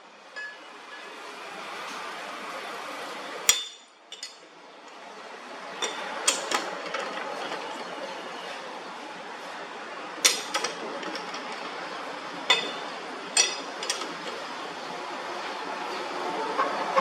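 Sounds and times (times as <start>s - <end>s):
steady background noise: 0.0s - 17.0s
metal striking metal: 12.5s - 14.4s.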